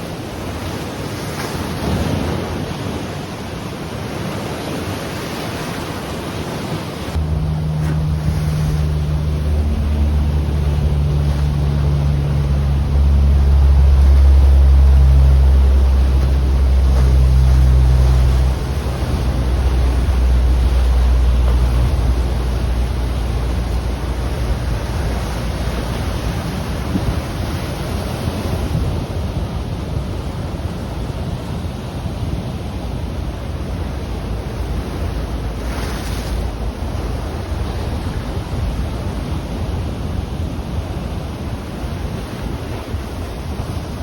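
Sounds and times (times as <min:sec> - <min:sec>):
surf washing on the shore: 0:00.0 - 0:44.0
wind rumbling on microphone: 0:00.0 - 0:44.0
low engine drone: 0:07.1 - 0:31.6.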